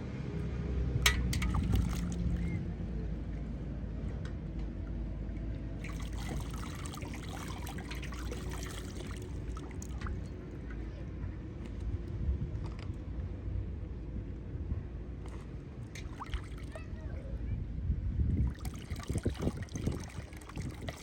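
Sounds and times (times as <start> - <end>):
water trickling and splashing: 1.0 - 2.6, 5.8 - 10.7, 15.2 - 17.2, 18.4 - 21.0.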